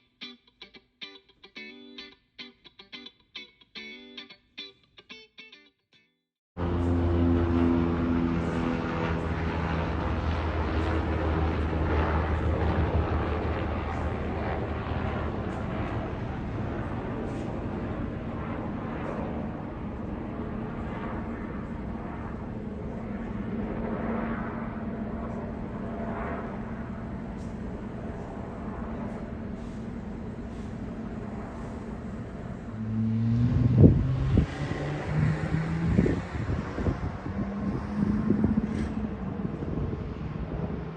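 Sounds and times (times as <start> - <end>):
airliner engine rumble: 6.6 - 32.9, 35.8 - 40.9.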